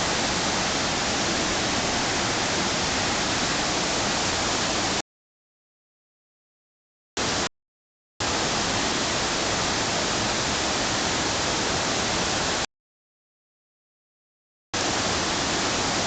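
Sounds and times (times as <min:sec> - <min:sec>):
waterfall rushing: 0:00.0 - 0:05.0, 0:08.2 - 0:12.6, 0:14.8 - 0:16.0.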